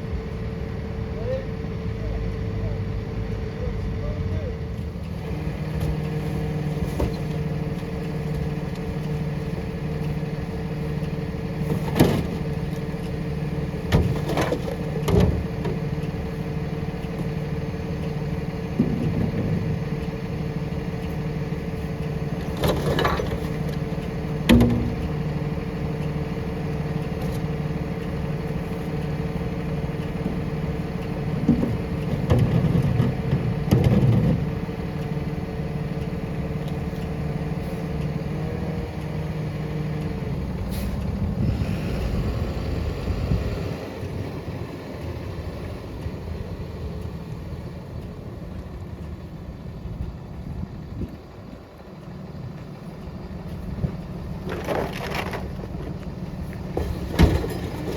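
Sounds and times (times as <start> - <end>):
garbage truck engine running: 0.0 - 57.9
recycling clattering into hopper: 13.8 - 15.8, 22.4 - 25.3, 31.2 - 34.6, 54.4 - 57.9.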